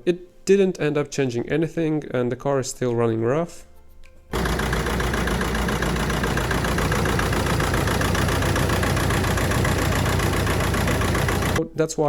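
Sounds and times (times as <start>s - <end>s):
diesel engine idling rough: 4.4s - 11.6s.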